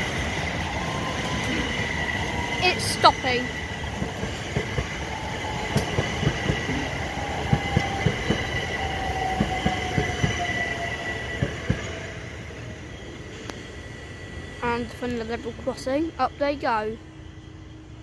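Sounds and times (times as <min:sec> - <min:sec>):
train wheels clicking over rail joints: 0:05.6 - 0:06.9.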